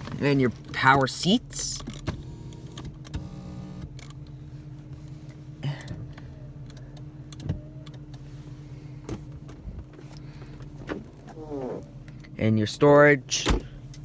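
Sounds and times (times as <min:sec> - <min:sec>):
clicks and knocks of car controls: 0:05.8 - 0:08.2.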